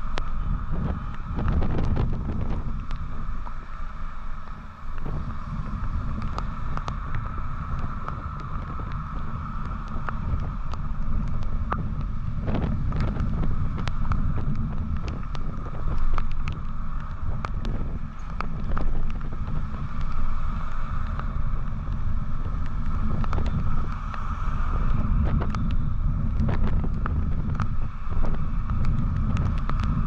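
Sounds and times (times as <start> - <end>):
motorcycle engine rumble: 0.0 - 30.0
wind buffeting microphone: 0.0 - 30.0.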